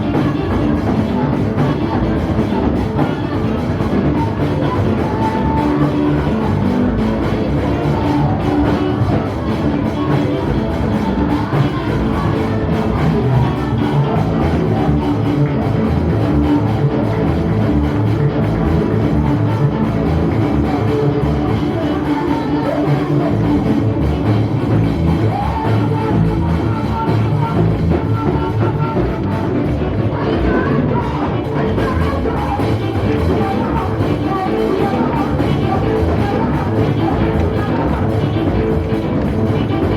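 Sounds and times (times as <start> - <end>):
drums: 0.0 - 39.9
guitar: 0.0 - 39.9
live band playing: 0.0 - 39.9.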